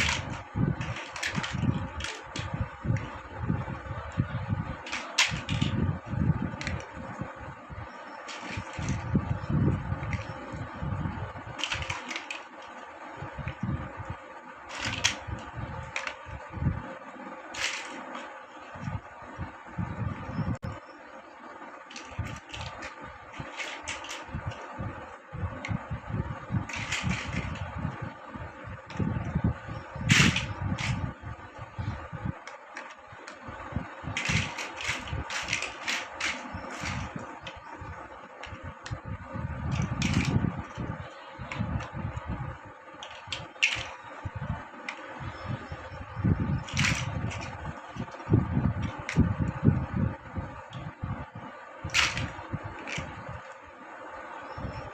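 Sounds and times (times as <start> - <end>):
plastic bricks clicking together: 0.0 - 3.1, 4.8 - 5.8, 8.2 - 9.0, 11.6 - 12.8, 14.7 - 16.3, 17.5 - 18.3, 21.9 - 24.6, 26.6 - 27.6, 30.1 - 31.0, 34.1 - 37.6, 39.7 - 40.8, 43.0 - 44.0, 46.6 - 48.2, 51.9 - 53.6.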